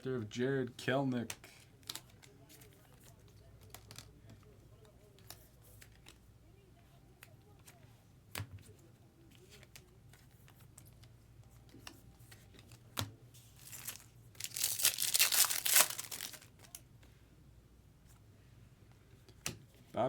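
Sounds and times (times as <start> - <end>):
foil wrapper tearing and crinkling: 13.6 - 16.8.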